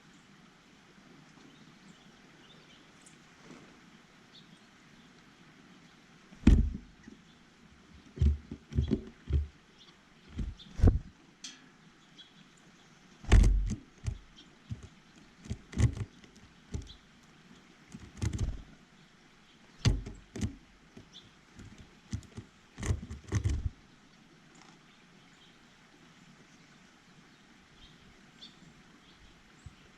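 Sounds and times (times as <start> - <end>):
birds tapping on bird feeder: 6.4 - 7.2, 7.9 - 11.7, 13.2 - 17.1, 17.9 - 18.8, 19.8 - 23.8.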